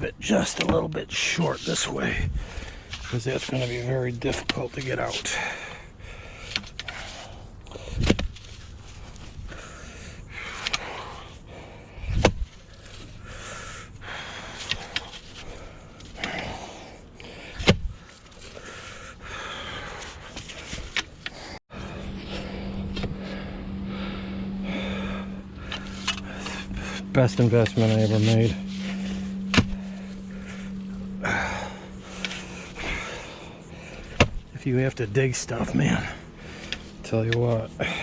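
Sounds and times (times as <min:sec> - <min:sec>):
steady low hum: 0:00.0 - 0:38.0
scraping and scooping sand: 0:03.0 - 0:05.3, 0:25.8 - 0:29.3.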